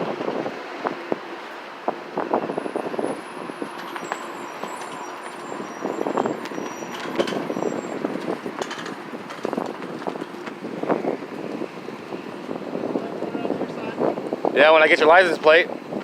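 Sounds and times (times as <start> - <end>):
road traffic: 0.0 - 16.0
clicks and rustles: 8.2 - 10.6.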